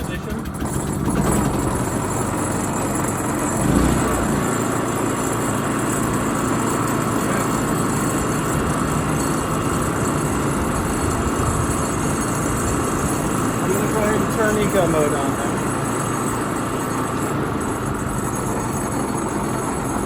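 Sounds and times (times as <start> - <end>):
generator engine running: 0.0 - 20.0.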